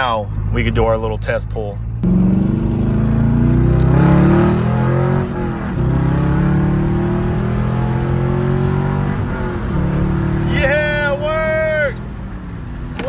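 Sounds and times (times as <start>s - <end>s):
car engine revving at full throttle: 2.0s - 13.0s.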